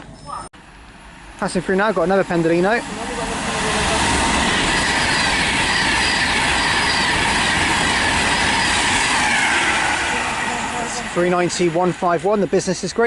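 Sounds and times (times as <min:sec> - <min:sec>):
electric train passing at speed: 0:00.0 - 0:13.0
rail clatter: 0:01.7 - 0:12.9.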